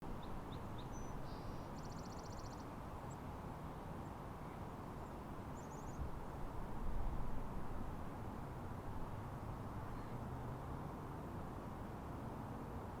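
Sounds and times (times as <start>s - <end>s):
small birds calling: 0.1s - 3.2s.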